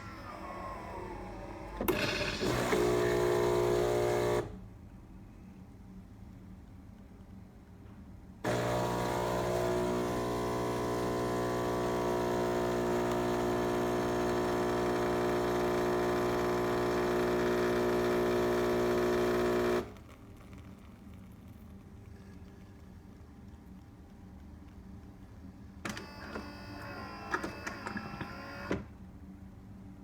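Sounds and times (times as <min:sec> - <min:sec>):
espresso machine humming: 0:00.0 - 0:04.6, 0:08.5 - 0:20.1.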